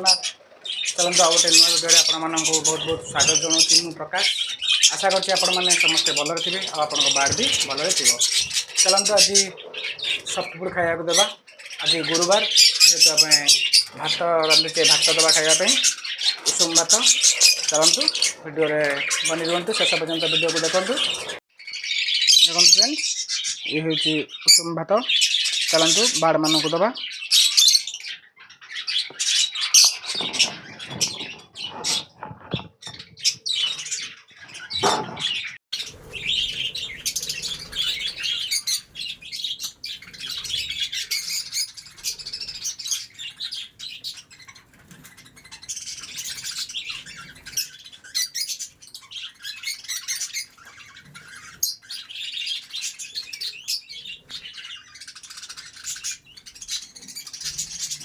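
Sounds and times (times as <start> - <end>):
budgies chattering and chirping: 0.0 - 58.0
knocks and rustles: 30.1 - 33.3.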